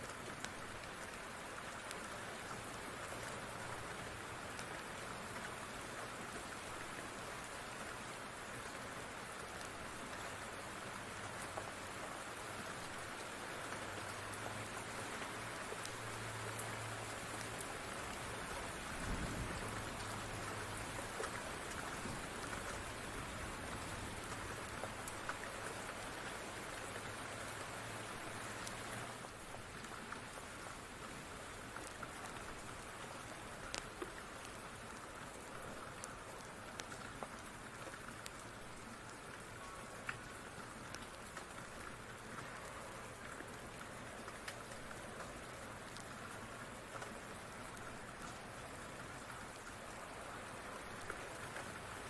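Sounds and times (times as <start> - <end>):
steady rain falling: 0.0 - 52.0
wood fire crackling: 31.7 - 48.5, 50.8 - 51.7.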